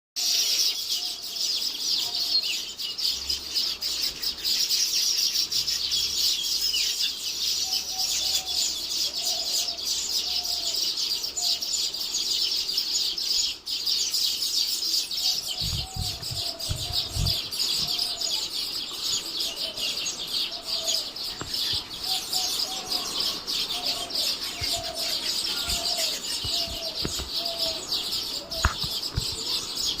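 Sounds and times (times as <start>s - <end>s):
high bird chirping chorus: 0.2s - 30.0s
low thumps: 15.5s - 18.1s, 25.6s - 27.9s, 28.5s - 29.6s.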